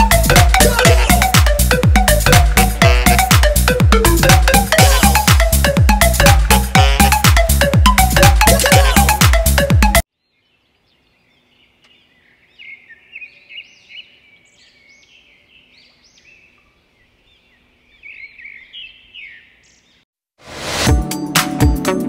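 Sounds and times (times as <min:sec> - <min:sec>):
electronic dance music: 0:00.0 - 0:10.0
songbirds chirping: 0:10.1 - 0:20.1.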